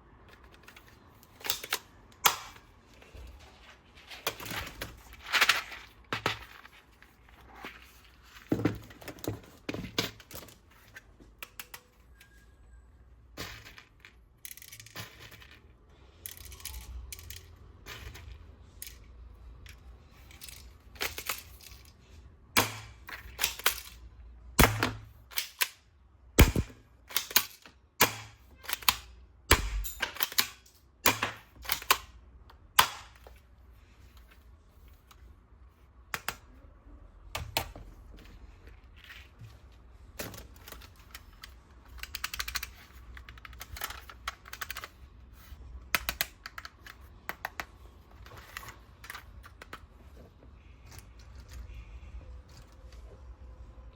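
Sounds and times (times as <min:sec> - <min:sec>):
plastic toys clicking and snapping: 0:00.2 - 0:02.8, 0:09.9 - 0:12.2, 0:13.5 - 0:33.4, 0:36.0 - 0:36.6, 0:40.1 - 0:49.9.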